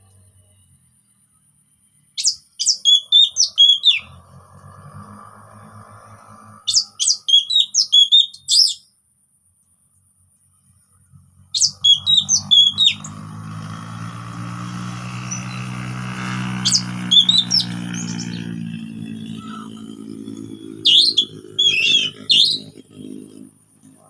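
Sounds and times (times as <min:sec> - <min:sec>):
thrush whistling song: 0:02.2 - 0:04.5, 0:05.6 - 0:08.9, 0:11.4 - 0:23.0.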